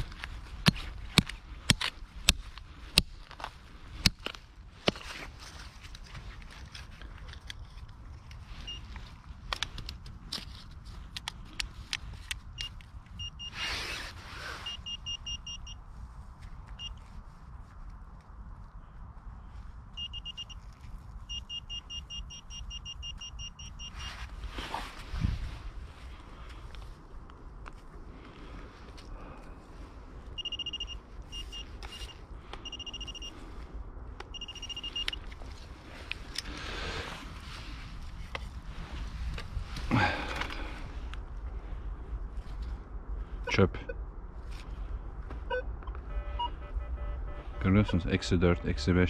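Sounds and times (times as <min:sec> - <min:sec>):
metal detector beeping: 0:08.6 - 0:08.9, 0:12.5 - 0:13.7, 0:14.6 - 0:15.8, 0:16.8 - 0:17.0, 0:19.9 - 0:24.3, 0:30.4 - 0:33.4, 0:34.2 - 0:35.3, 0:45.5 - 0:49.0
scraping rustle: 0:13.5 - 0:14.8.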